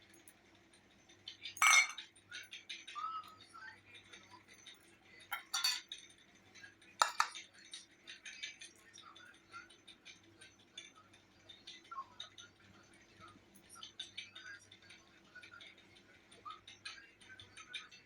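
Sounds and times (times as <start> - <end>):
plate and utensils clinking: 1.6 - 2.0, 5.3 - 5.9, 7.0 - 7.4.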